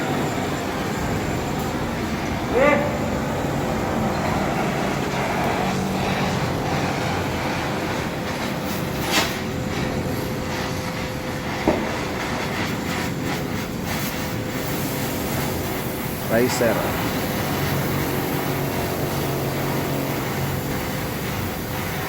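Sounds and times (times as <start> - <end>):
machinery rumbling: 0.0 - 12.4.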